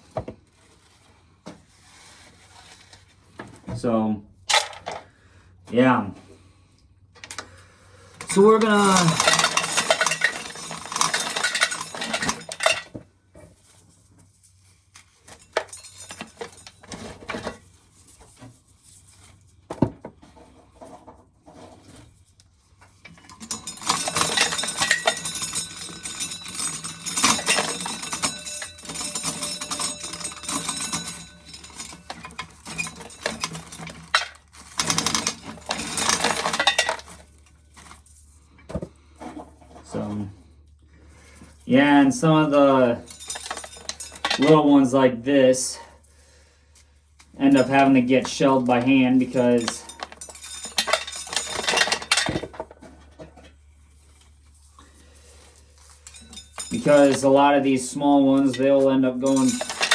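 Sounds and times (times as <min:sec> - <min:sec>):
corn kernels rattling into metal can: 0:08.2 - 0:12.9, 0:23.2 - 0:38.1, 0:41.7 - 0:45.8, 0:47.4 - 0:52.7, 0:55.8 - 0:59.9.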